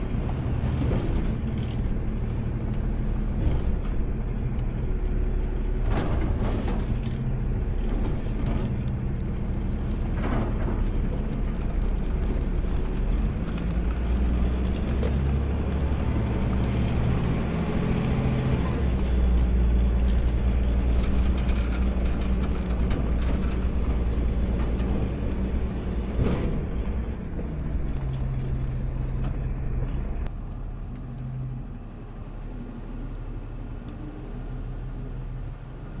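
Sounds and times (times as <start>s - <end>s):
garbage truck engine rumbling: 0.0s - 36.0s.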